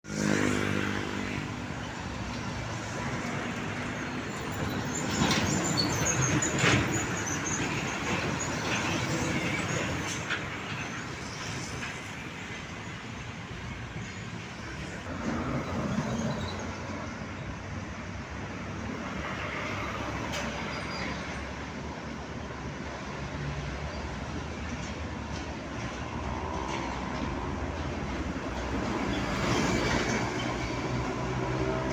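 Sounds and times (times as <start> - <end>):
road traffic rumble: 0.0 - 31.9.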